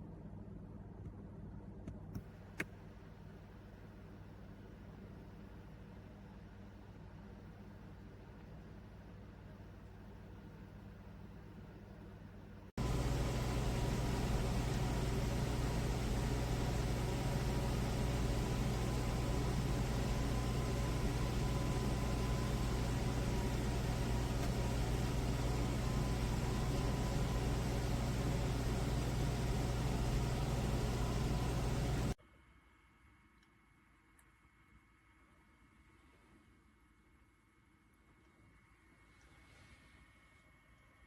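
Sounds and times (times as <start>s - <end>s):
humidifier humming and hissing: 0.0s - 32.2s
faint steady whine: 0.0s - 41.0s.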